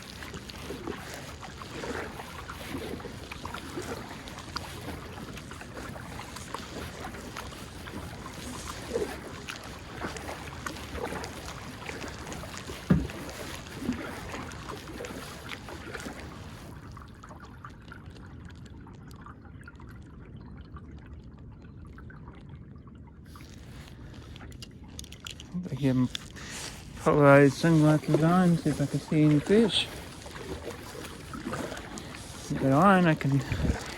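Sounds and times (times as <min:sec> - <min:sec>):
water splashing and trickling: 0:00.0 - 0:33.9
paddle knocking against hull: 0:10.0 - 0:14.7, 0:27.2 - 0:33.9.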